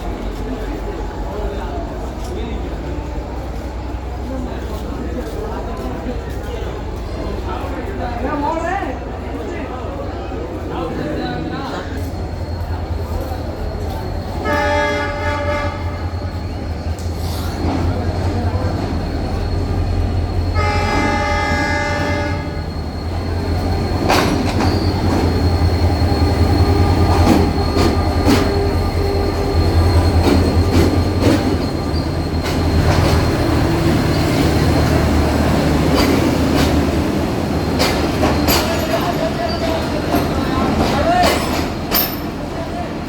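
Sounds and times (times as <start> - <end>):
diesel locomotive engine drone: 0.0 - 43.0
train horn blast: 14.4 - 16.1, 20.5 - 22.6
train wheels clacking over rail joints: 16.8 - 42.5.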